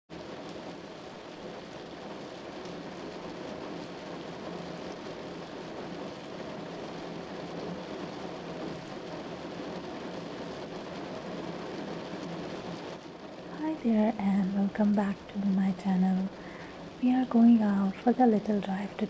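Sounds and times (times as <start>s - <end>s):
steady rain falling: 0.1s - 19.0s
faint low hum: 13.4s - 19.0s.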